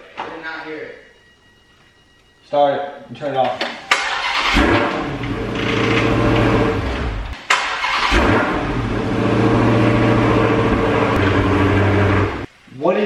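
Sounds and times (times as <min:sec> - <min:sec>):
engine cranking and starting: 0:03.9 - 0:10.6
car engine idling: 0:08.1 - 0:12.5.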